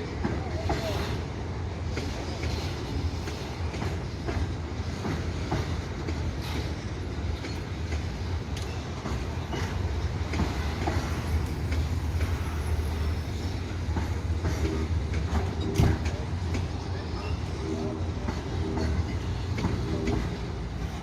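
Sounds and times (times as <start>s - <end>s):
train wagons rumbling past: 0.0s - 21.0s
wheels clicking over rail joints: 1.9s - 17.6s, 18.2s - 21.0s.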